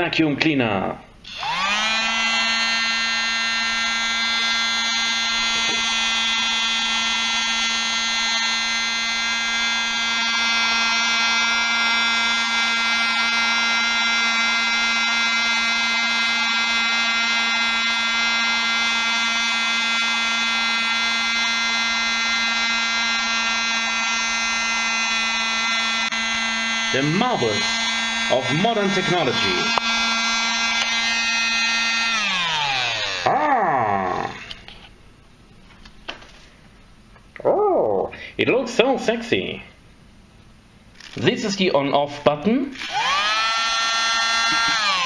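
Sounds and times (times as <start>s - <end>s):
mini vacuum motor whine: 1.2s - 34.8s, 42.8s - 45.0s.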